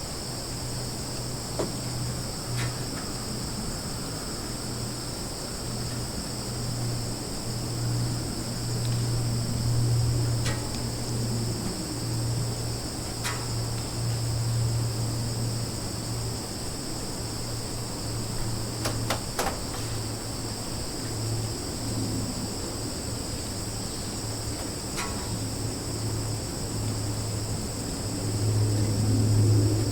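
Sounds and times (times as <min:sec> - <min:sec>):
high-pitched insect chorus: 0:00.0 - 0:29.9.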